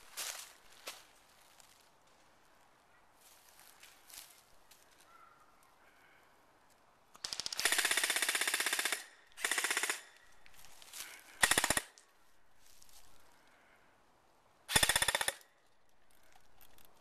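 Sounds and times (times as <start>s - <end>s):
airsoft guns firing bursts: 7.2s - 10.2s, 11.4s - 12.0s, 14.7s - 15.5s.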